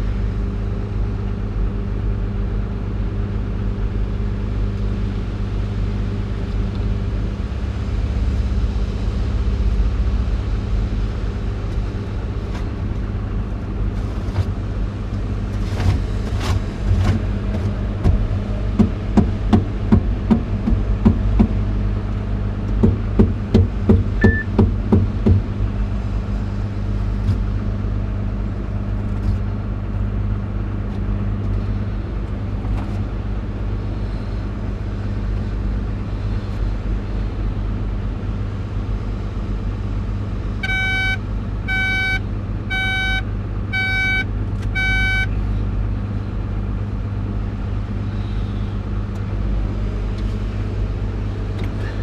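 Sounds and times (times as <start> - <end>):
excavator engine running: 0.0 - 52.0
knocks and clanks: 15.7 - 21.6, 22.7 - 25.5
electronic warning beeper: 24.2 - 24.5, 40.6 - 43.2, 43.8 - 45.3.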